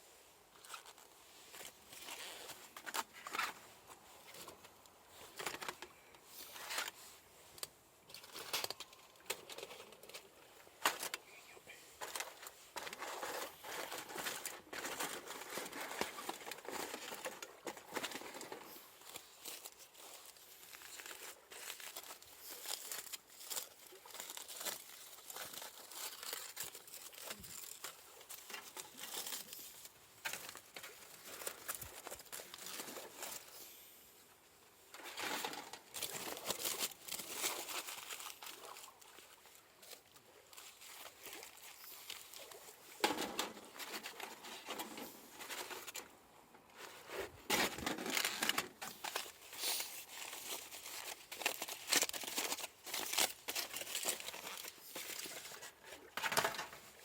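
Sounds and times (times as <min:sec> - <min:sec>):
wrapping crinkling and rustling: 0:00.0 - 0:57.0.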